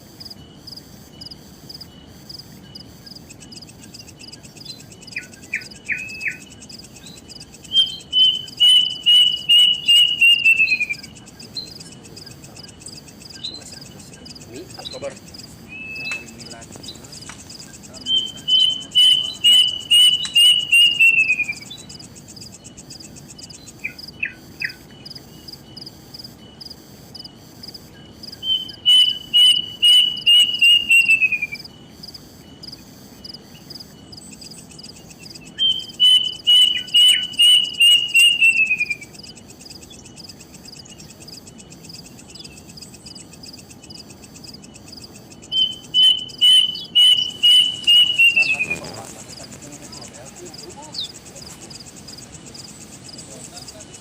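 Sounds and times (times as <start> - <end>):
crickets trilling: 0.0 - 54.0
bird whistled calls: 4.6 - 15.1, 15.7 - 22.0, 28.4 - 31.7, 35.4 - 40.1, 45.4 - 51.8.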